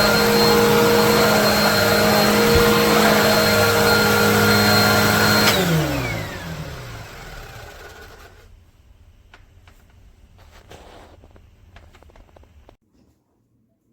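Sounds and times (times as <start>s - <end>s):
motor winding down whine: 0.0s - 8.5s
vacuum cleaner running: 0.0s - 8.6s.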